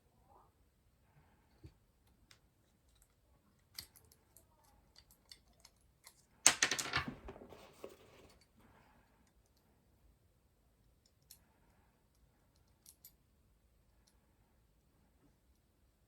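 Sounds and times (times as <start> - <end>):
clattering clicks and rustling: 6.5 - 8.4.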